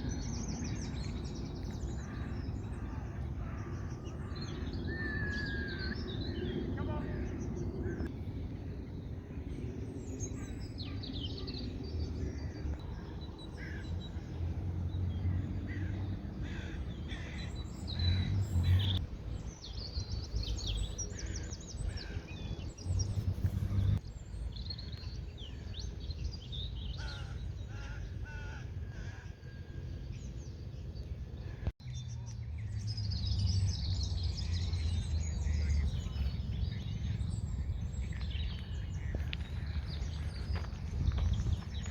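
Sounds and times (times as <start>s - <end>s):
steady low rumble: 5.8s - 26.9s, 28.9s - 41.9s
birds chirping and calling: 15.0s - 29.4s, 31.3s - 41.9s.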